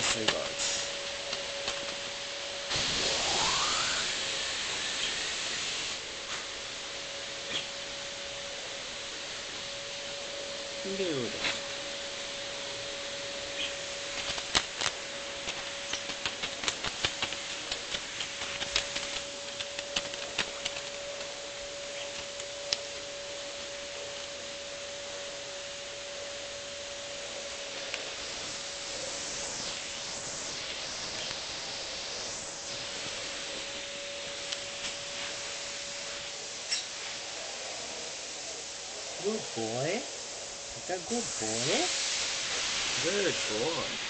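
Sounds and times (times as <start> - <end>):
steady hum: 0.0 - 44.0
bird beak clicking and nibbling: 14.1 - 21.3.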